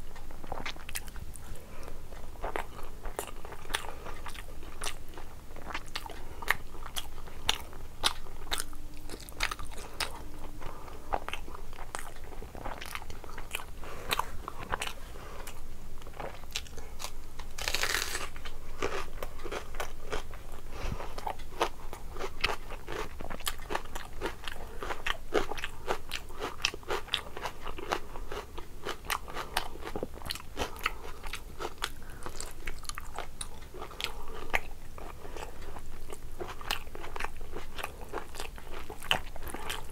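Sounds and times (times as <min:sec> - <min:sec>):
person chewing food: 0:00.0 - 0:39.9
crunchy bites: 0:11.2 - 0:20.3.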